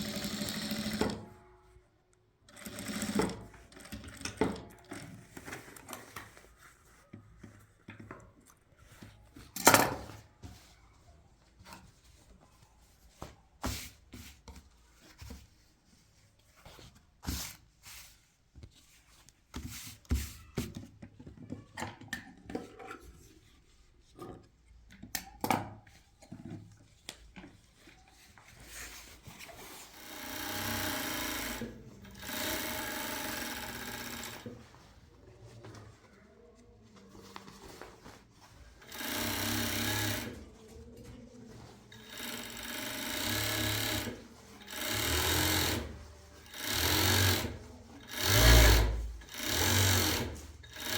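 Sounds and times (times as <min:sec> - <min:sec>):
sewing machine stitching: 0:00.0 - 0:01.5, 0:02.5 - 0:05.4, 0:29.5 - 0:34.6, 0:38.8 - 0:40.4, 0:41.9 - 0:50.9.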